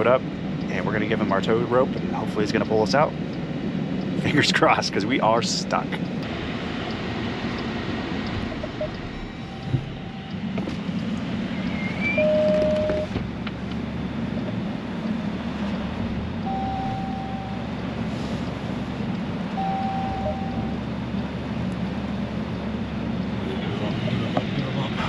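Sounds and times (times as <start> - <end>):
vehicle engine running: 0.0 - 25.0
brief steady tones: 8.3 - 10.6, 11.6 - 13.2, 16.4 - 17.8, 19.5 - 20.8.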